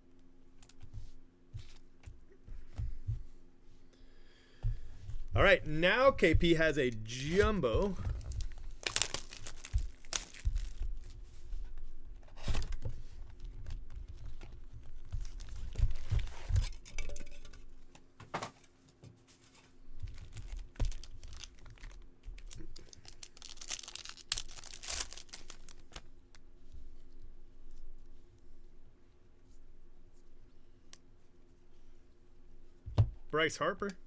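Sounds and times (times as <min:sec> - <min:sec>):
cards being handled: 0:00.5 - 0:03.2, 0:05.4 - 0:16.7, 0:18.6 - 0:26.1
wrapper tearing and crinkling: 0:06.9 - 0:11.2, 0:15.2 - 0:16.4, 0:20.0 - 0:26.0.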